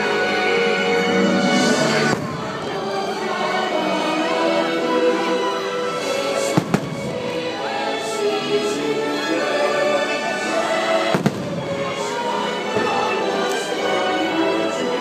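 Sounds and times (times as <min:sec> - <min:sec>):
fireworks bursting with bangs: 0:01.9 - 0:02.8, 0:06.0 - 0:07.4, 0:11.0 - 0:12.2.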